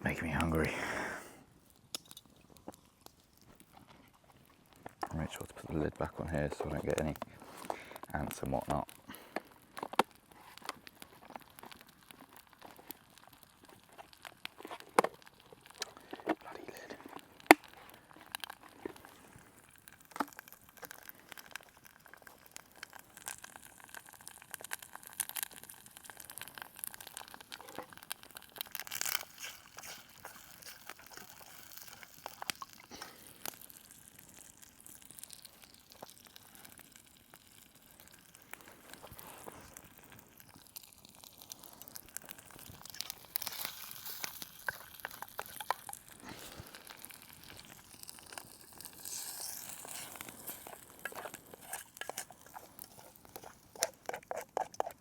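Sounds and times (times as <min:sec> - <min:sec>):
faint hiss: 0:00.0 - 0:02.5
eggs crackling in a pan: 0:00.0 - 0:55.0.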